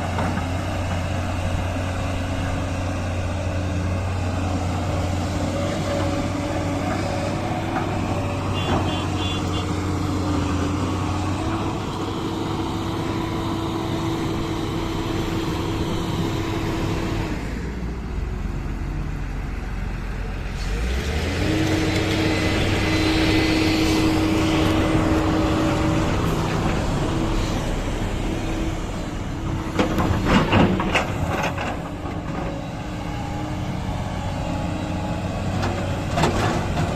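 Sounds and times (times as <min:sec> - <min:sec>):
heavy diesel machinery running: 0:00.0 - 0:36.9
loud clanks and knocks: 0:29.6 - 0:32.5.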